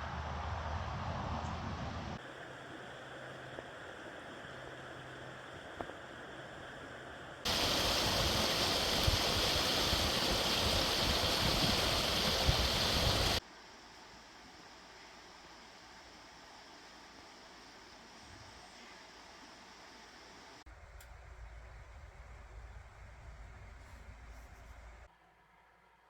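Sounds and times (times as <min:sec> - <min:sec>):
low hum: 0:00.0 - 0:02.2
river rushing: 0:07.5 - 0:13.4.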